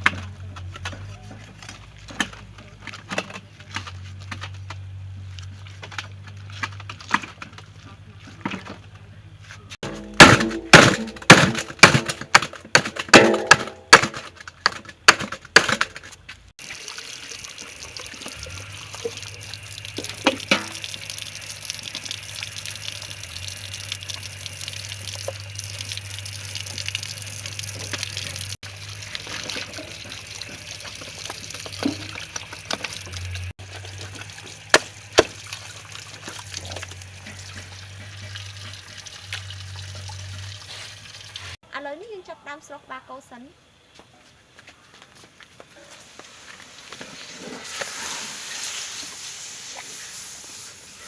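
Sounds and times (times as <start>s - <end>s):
running water: 16.6s - 41.6s.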